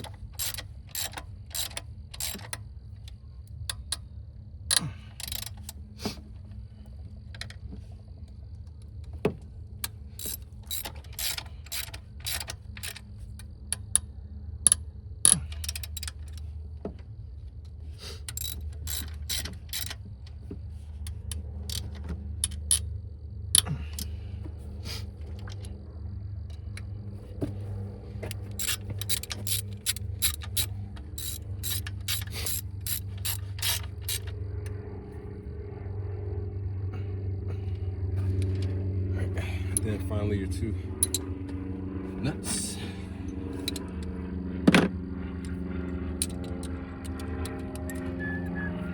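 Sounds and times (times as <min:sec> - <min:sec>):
socket ratchet clicking: 0:00.0 - 0:02.6, 0:04.7 - 0:05.7, 0:10.2 - 0:13.0, 0:18.3 - 0:20.0, 0:28.3 - 0:34.4, 0:41.0 - 0:41.3, 0:46.2 - 0:48.1.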